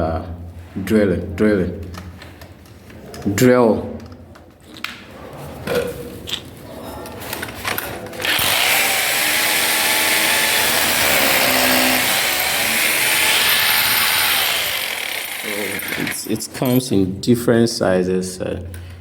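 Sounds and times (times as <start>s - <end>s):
hammer drill motor running: 8.2s - 16.2s.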